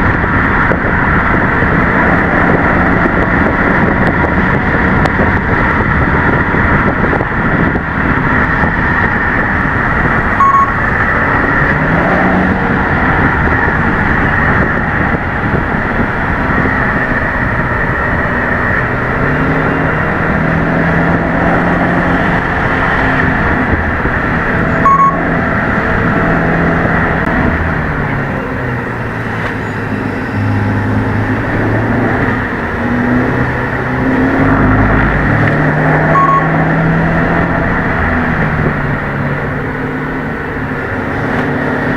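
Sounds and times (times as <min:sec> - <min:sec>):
car engine accelerating: 0:00.0 - 0:41.9
road noise: 0:00.0 - 0:41.9
short high beep: 0:10.4 - 0:10.8, 0:24.8 - 0:25.3, 0:36.1 - 0:36.6.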